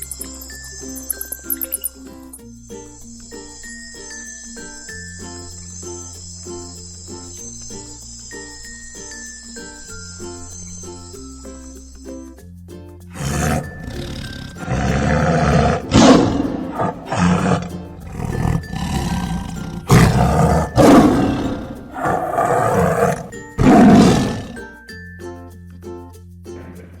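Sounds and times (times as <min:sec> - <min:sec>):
background music: 0:00.0 - 0:27.0
big cat roaring: 0:13.2 - 0:24.6.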